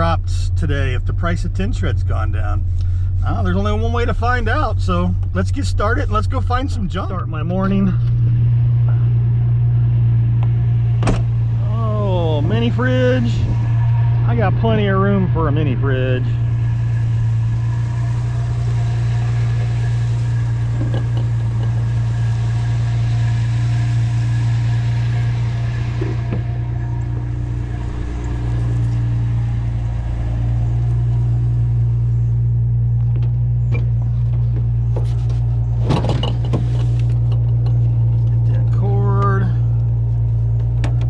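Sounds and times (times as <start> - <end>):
truck engine droning: 0.0 - 41.0
sharp clicks and knocks: 20.7 - 21.9, 33.0 - 38.4.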